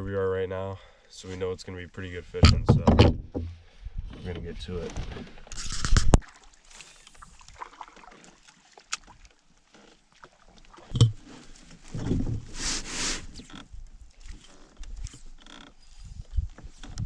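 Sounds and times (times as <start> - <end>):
hollow knock against canoe hull: 2.4 - 3.6.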